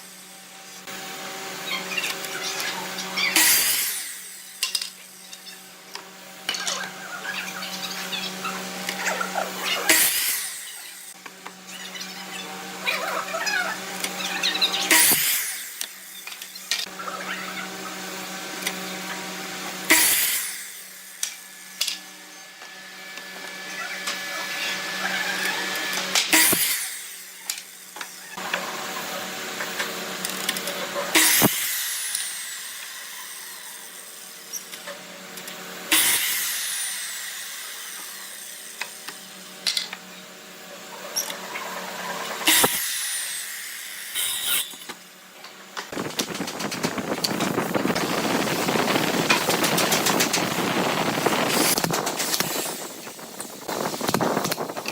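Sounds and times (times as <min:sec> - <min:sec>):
electric power tool humming: 0:00.0 - 0:54.9
loud harsh noise bursts: 0:45.9 - 0:54.8.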